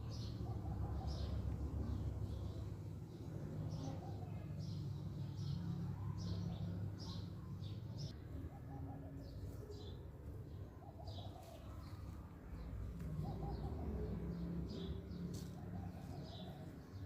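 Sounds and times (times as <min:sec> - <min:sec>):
pulsed cooing bird call: 0:12.8 - 0:17.0.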